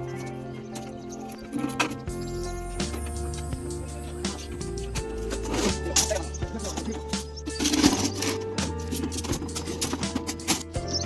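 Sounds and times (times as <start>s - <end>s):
music with held notes and beat: 0.0s - 11.0s.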